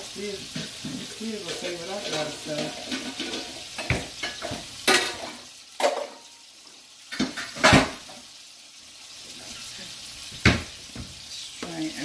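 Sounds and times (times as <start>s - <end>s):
patties sizzling in a pan: 0.0s - 12.0s
kitchenware clacks: 0.5s - 6.3s, 7.1s - 8.2s.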